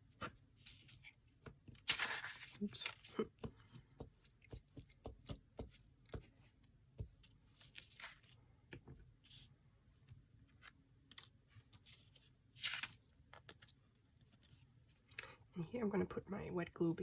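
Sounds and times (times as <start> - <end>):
paper rustling: 0.2 - 3.3, 7.2 - 8.4, 10.5 - 14.7.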